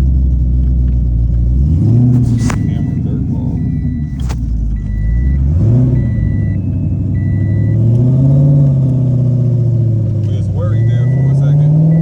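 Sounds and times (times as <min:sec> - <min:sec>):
car engine accelerating: 0:00.0 - 0:12.0
electronic warning beep: 0:02.3 - 0:07.9, 0:10.3 - 0:12.0.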